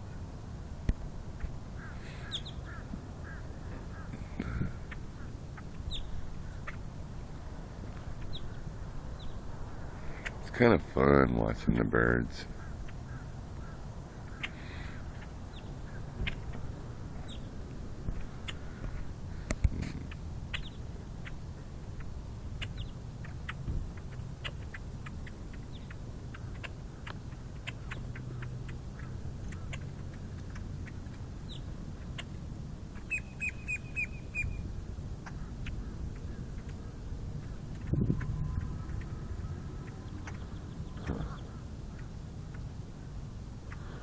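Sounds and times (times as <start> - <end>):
flock of birds chirping: 0.0 - 44.0
bird repeating notes: 33.0 - 34.6.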